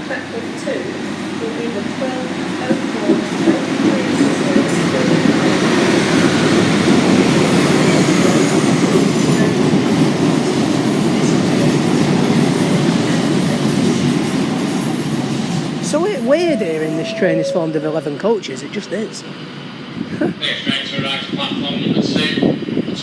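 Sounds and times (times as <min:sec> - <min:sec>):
train wheels rumbling on rails: 0:00.0 - 0:16.3.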